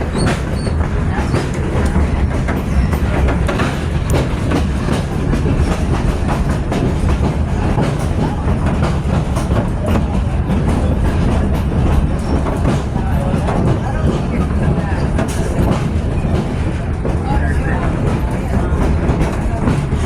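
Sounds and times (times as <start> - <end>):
train car rumbling on track: 0.0 - 20.0
wheels clacking over rails: 0.0 - 20.0.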